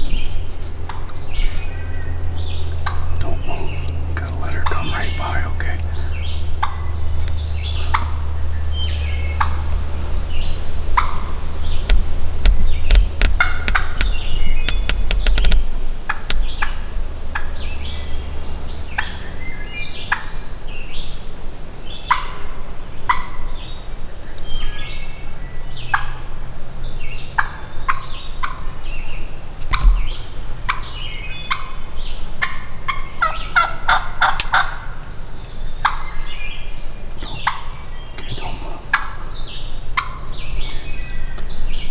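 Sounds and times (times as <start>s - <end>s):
turkey gobbling: 2.6s - 18.4s, 27.3s - 28.8s, 32.4s - 35.0s, 35.8s - 36.2s, 37.2s - 40.9s.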